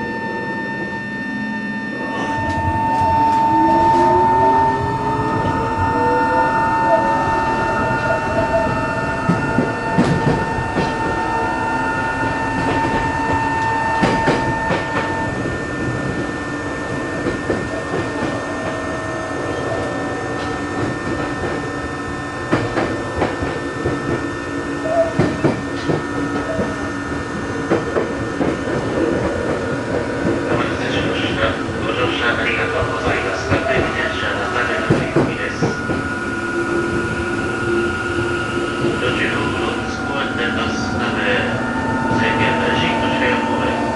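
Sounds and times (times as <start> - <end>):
train motors whining: 0.0 - 43.9
train wheels rumbling: 0.0 - 43.9
rail-joint clicks: 8.0 - 11.2, 12.6 - 15.2, 24.9 - 26.8, 27.7 - 36.1.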